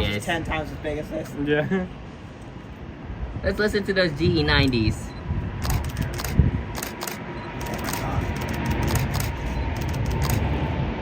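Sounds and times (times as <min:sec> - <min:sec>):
jet engines rumbling: 0:00.0 - 0:11.0
camera shutter clicks: 0:05.6 - 0:10.5.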